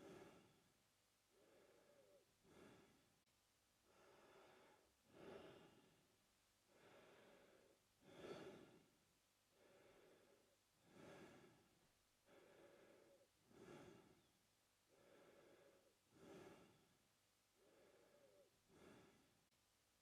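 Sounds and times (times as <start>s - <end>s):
man breathing through mouth: 1.4s - 3.0s, 6.7s - 8.8s, 9.6s - 11.7s, 12.3s - 14.2s, 14.9s - 16.9s, 17.6s - 19.3s.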